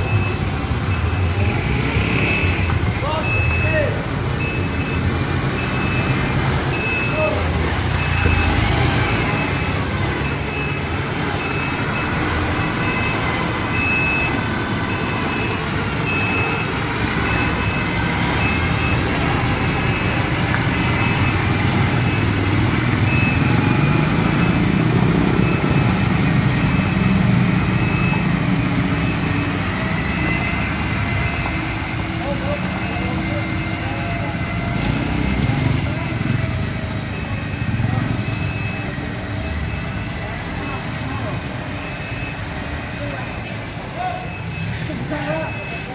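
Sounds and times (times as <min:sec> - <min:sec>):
diesel truck engine rumbling: 0:00.0 - 0:45.9
high reversing alarm beeping: 0:00.0 - 0:45.9.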